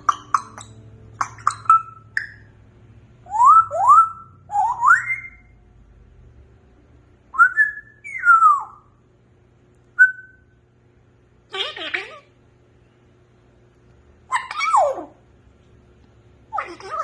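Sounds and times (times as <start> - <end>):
parrot whistling: 0.0 - 2.5, 3.2 - 5.6, 7.3 - 9.0, 10.0 - 10.5.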